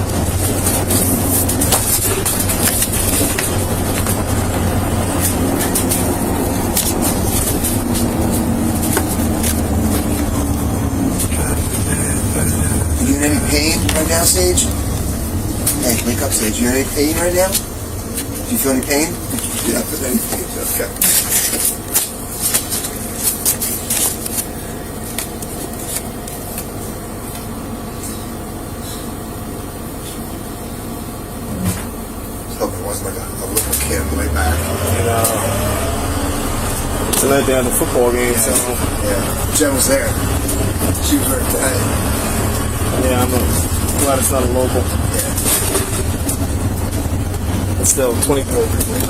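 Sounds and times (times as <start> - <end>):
road noise: 0.0 - 49.0
vehicle engine drone: 0.0 - 49.0.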